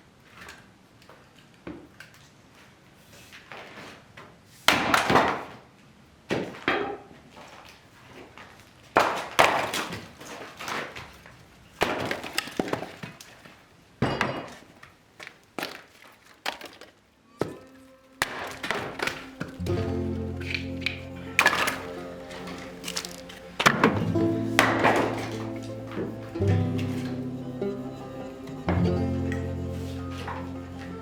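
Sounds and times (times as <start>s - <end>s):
hard objects crashing down: 18.2s - 27.2s.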